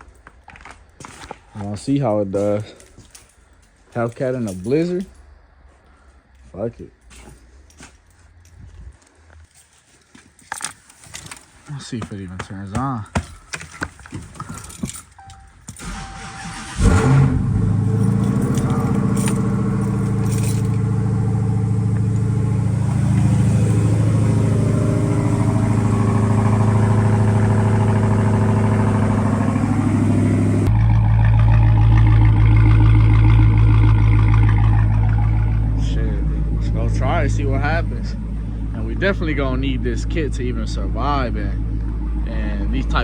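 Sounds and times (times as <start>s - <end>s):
car engine starting and idling: 14.9s - 43.0s.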